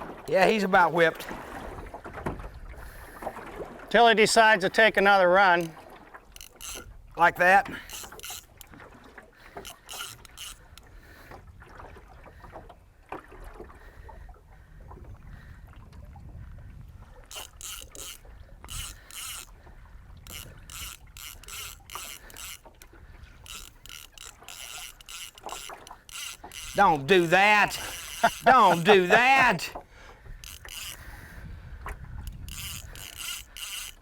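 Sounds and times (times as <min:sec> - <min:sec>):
fishing reel drag clicking: 0:05.4 - 0:11.4, 0:17.2 - 0:34.0.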